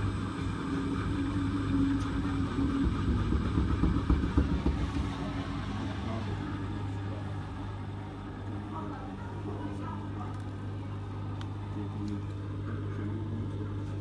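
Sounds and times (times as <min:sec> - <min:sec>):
washing machine drum rumble: 0:00.0 - 0:08.4
washing machine motor hum: 0:00.0 - 0:14.0.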